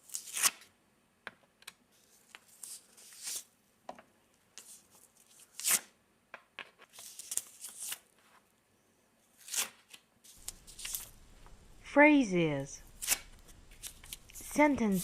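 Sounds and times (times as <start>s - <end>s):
paper rustling and tearing: 0.0s - 0.7s, 2.0s - 3.5s, 6.8s - 8.2s, 9.4s - 11.6s, 12.8s - 15.0s.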